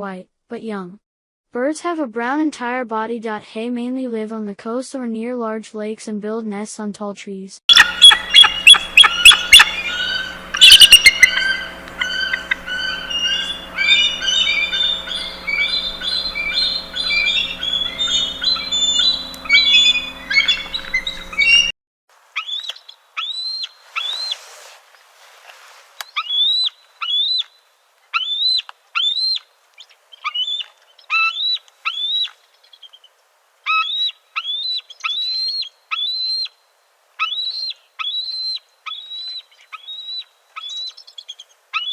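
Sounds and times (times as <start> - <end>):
birds chirping: 7.7 - 21.7, 22.3 - 36.5
high upslurred bird calls: 7.7 - 21.7, 22.3 - 33.1, 33.7 - 36.6, 37.2 - 41.9
steady low hum: 7.7 - 21.7.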